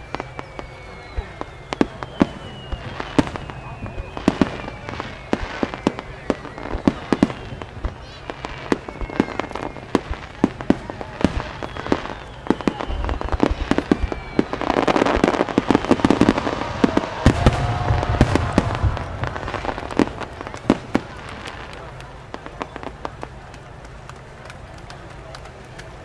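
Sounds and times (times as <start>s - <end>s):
firework whistles: 0.0s - 23.3s
fireworks bursting: 0.0s - 26.0s.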